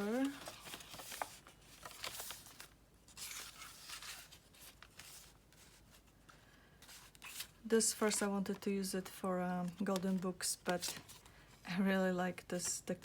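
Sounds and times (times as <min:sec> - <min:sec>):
paper pages rustling: 0:00.0 - 0:08.6, 0:09.7 - 0:11.4.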